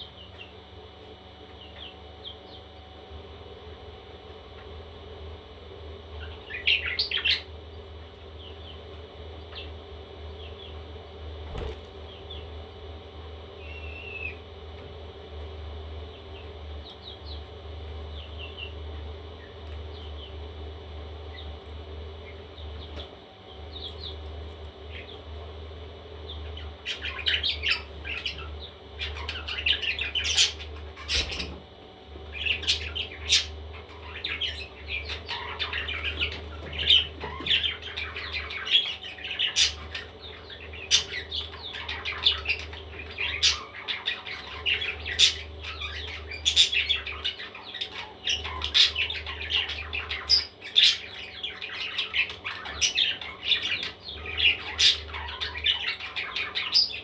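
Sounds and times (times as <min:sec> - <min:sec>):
baby parrots chattering: 0:32.3 - 0:57.0.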